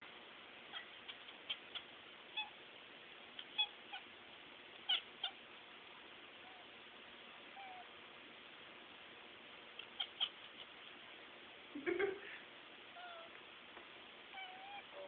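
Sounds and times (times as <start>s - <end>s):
cat chirping calls: 0.7s - 2.6s, 3.3s - 4.1s, 4.7s - 5.4s, 7.5s - 8.0s, 9.7s - 10.9s, 12.9s - 13.4s, 14.3s - 15.0s.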